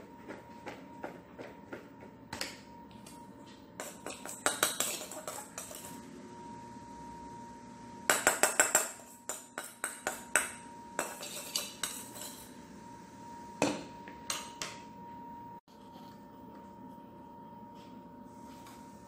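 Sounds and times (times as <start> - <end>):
dishes and utensils clattering: 3.8 - 6.0, 8.2 - 12.5.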